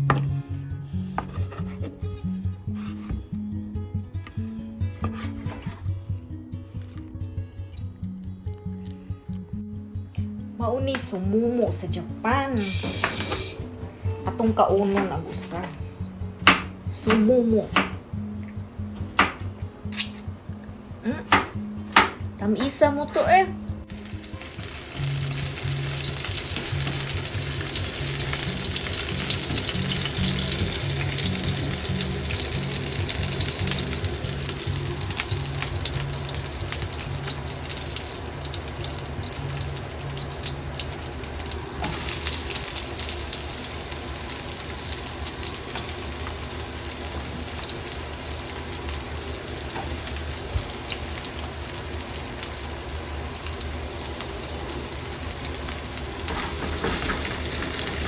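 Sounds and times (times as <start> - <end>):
garlic and onion sizzling in oil: 12.5 - 13.6, 23.9 - 58.0.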